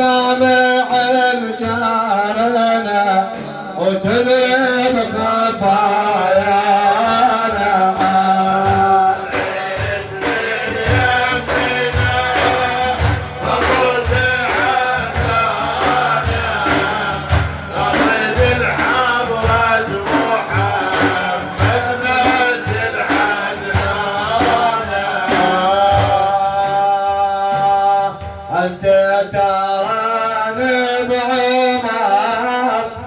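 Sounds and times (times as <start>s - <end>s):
frame drums beating: 0.0s - 33.0s
men singing or chanting: 0.0s - 33.0s.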